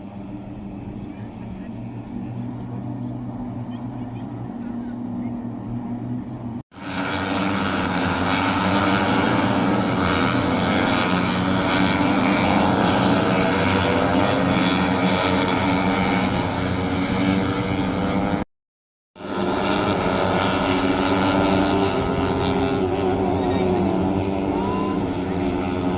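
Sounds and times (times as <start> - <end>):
hissing wash: 0.0 - 18.2
loud steady engine drone: 0.0 - 18.5, 19.2 - 25.9.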